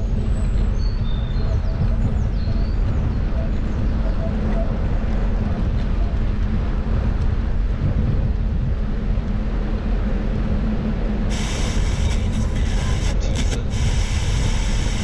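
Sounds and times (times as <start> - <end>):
bicycle rolling noise: 0.0 - 15.0
wind rumble: 0.0 - 15.0
loud hiss: 11.3 - 15.0.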